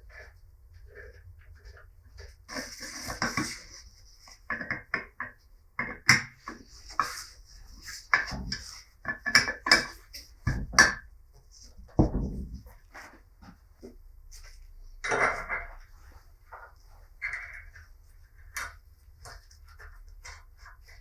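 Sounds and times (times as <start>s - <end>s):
metal tools clinking and knocking: 15.0s - 15.8s.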